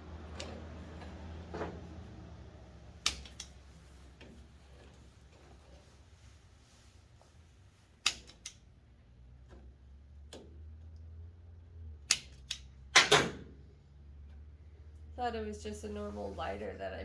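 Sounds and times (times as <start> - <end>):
torch lighter clicking: 3.0 - 3.6, 8.0 - 8.6, 12.1 - 12.7.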